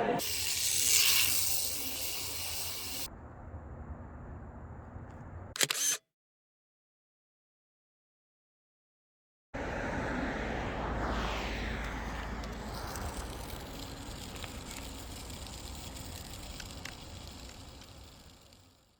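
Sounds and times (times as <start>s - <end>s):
vehicle driving past: 9.6s - 15.9s.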